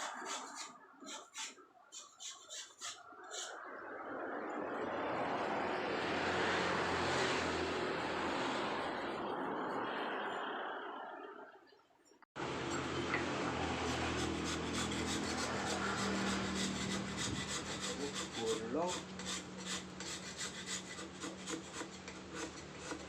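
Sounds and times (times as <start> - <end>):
carving tool scraping stone: 0.0 - 3.5, 13.9 - 23.0.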